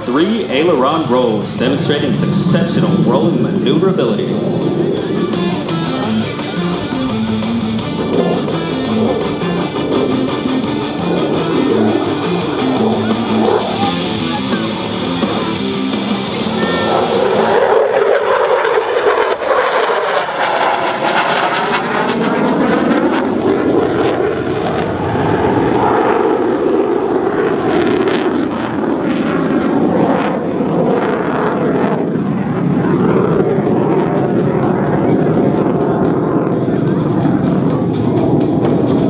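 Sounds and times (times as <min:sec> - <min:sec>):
music over loudspeakers: 0:00.0 - 0:17.6, 0:32.6 - 0:39.0
fighter jet flying past: 0:00.0 - 0:39.0.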